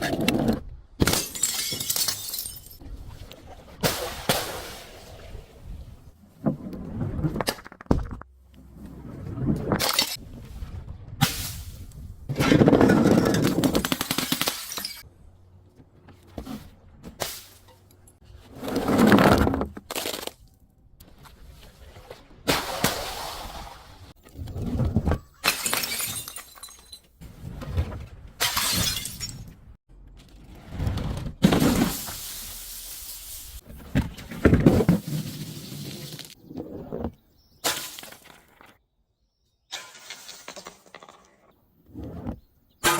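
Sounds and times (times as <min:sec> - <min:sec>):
glass bottles smashing: 0:01.0 - 0:02.8, 0:13.4 - 0:15.0, 0:25.3 - 0:27.1, 0:28.4 - 0:29.5
glass shattering: 0:01.0 - 0:02.8, 0:13.9 - 0:15.0, 0:25.3 - 0:27.1, 0:28.4 - 0:29.6.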